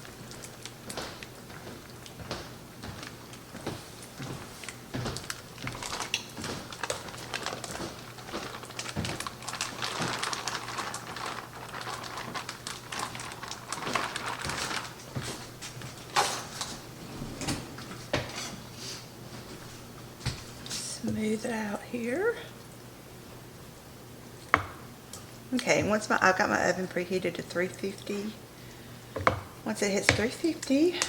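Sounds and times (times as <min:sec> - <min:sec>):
utensil scraping a baking pan: 0:16.2 - 0:19.1.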